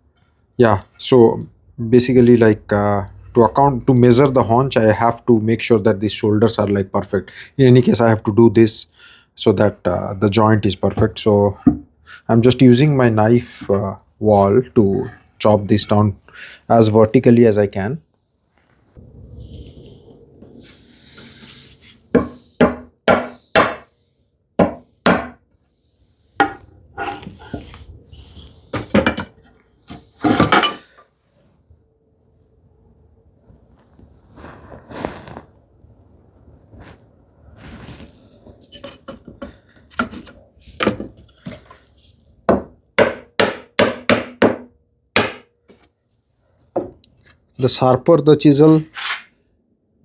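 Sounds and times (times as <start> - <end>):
chisel scraping wood: 20.6 - 24.0, 26.4 - 29.0, 48.9 - 49.3
chisel chopping into wood: 22.2 - 23.9, 24.6 - 25.4, 42.5 - 45.5
chisel knocks into wood: 22.2 - 23.9, 24.6 - 25.4.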